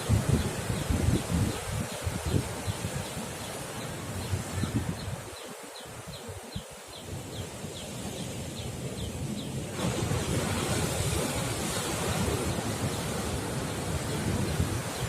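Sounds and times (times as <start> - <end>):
wind buffeting microphone: 0.0 - 5.3, 7.0 - 15.0
sea waves against rocks: 9.6 - 15.0.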